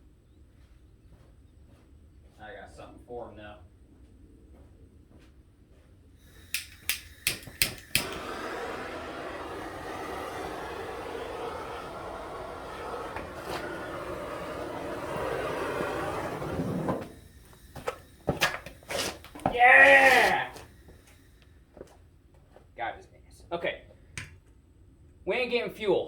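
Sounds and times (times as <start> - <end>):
aerosol spray can hissing: 6.2 - 21.2
sharp clicks: 6.4 - 8.2.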